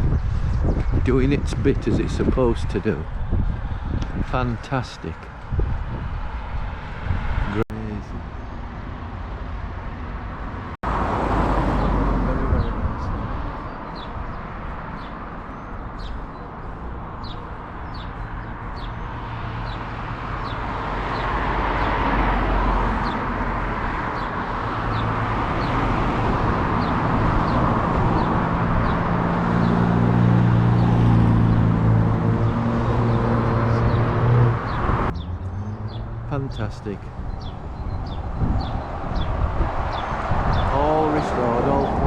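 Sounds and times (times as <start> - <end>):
road traffic passing: 0.0 - 42.0
bird chirping: 13.6 - 22.0, 24.1 - 29.0, 32.4 - 42.0.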